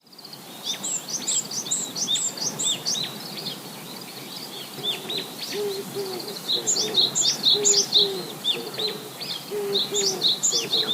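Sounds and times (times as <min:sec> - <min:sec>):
small birds chirping: 0:00.0 - 0:10.9
low cooing note: 0:05.6 - 0:10.9.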